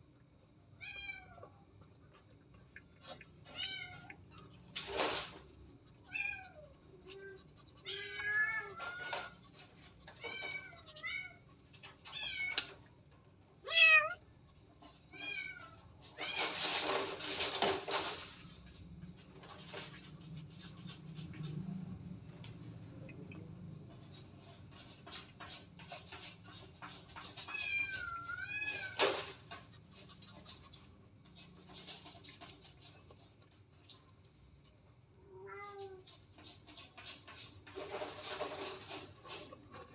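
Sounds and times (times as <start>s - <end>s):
cat meowing: 3.4s - 4.2s, 6.0s - 9.5s, 13.6s - 14.2s, 35.3s - 36.1s
rustling noise: 4.7s - 6.4s, 14.8s - 22.9s, 35.6s - 39.9s.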